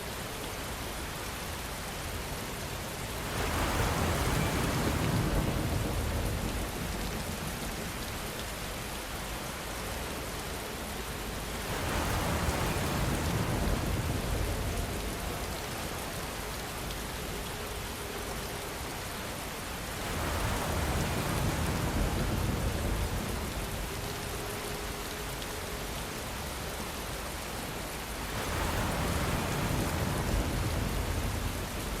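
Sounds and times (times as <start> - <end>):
deep rush of rain: 0.0 - 32.0
steady rainfall hiss: 0.0 - 32.0.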